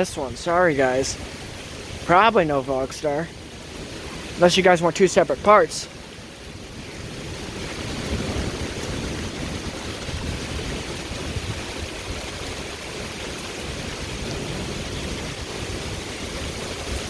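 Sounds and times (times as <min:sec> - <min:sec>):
heavy rain pouring: 0:00.0 - 0:17.0
wind gusts on microphone: 0:00.0 - 0:17.0.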